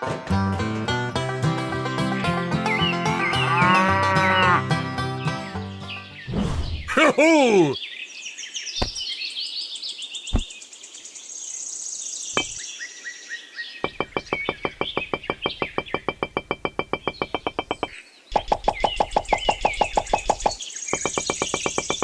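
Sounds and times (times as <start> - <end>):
birds chirping: 1.2 - 6.4, 7.5 - 11.2, 11.8 - 22.0
rapid even knocking: 13.8 - 17.9, 18.6 - 22.0.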